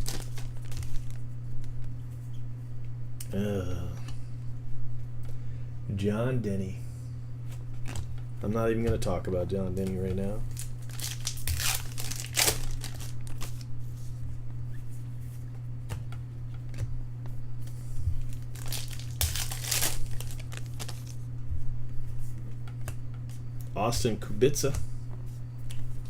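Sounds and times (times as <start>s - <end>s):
foil wrappers crinkling and tearing: 0.0s - 1.2s, 10.4s - 13.7s, 18.1s - 21.2s.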